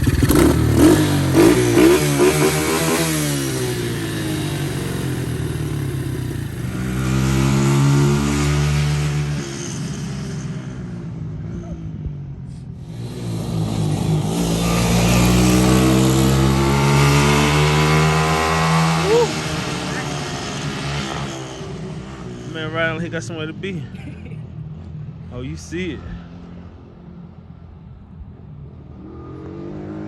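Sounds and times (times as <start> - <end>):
atv engine revving: 0.0 - 11.8, 12.8 - 24.2.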